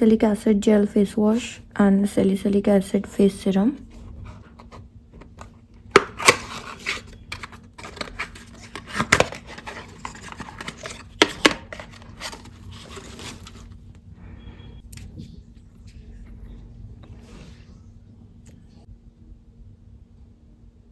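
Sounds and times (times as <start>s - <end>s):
plastic and paper crinkling: 3.9s - 13.8s.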